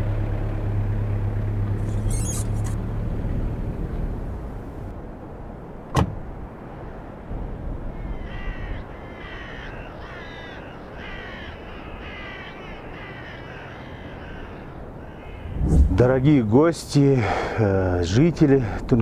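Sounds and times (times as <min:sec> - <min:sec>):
large bird cawing: 0:07.9 - 0:15.6
low background rumble: 0:13.8 - 0:17.1.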